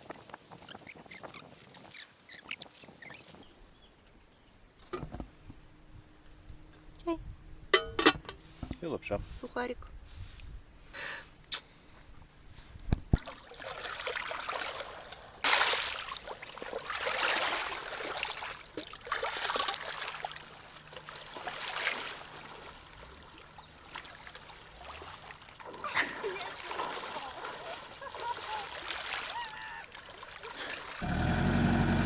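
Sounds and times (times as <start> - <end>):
water trickling and splashing: 12.9 - 31.6.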